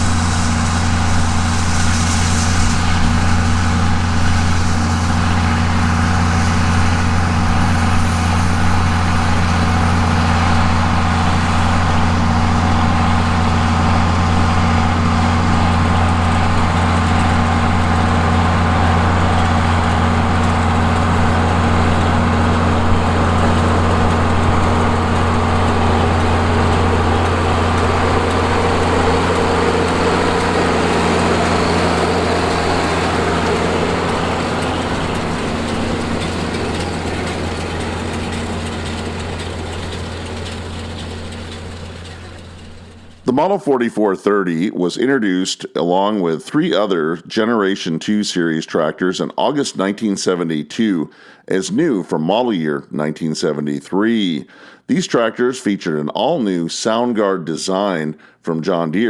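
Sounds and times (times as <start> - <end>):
round baler baling hay: 0.0 - 43.5
tractor diesel engine under load: 0.0 - 43.8.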